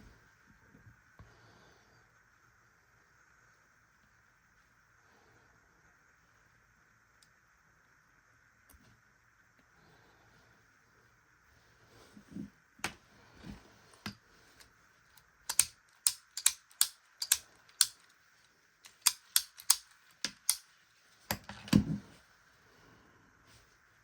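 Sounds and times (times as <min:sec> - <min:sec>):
sharp clicks of small objects: 0:15.2 - 0:18.2, 0:18.8 - 0:20.7.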